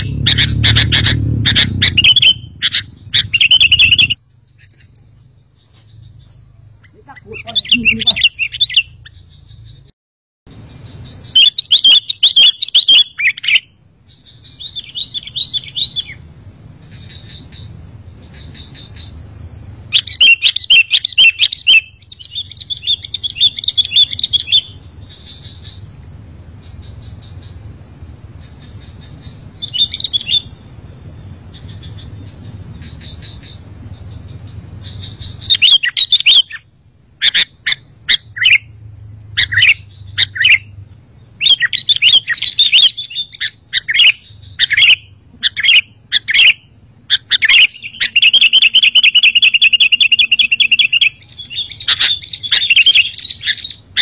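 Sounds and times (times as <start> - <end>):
bulbul singing: 0.0 - 9.9, 10.5 - 54.0
low hum: 0.0 - 9.9.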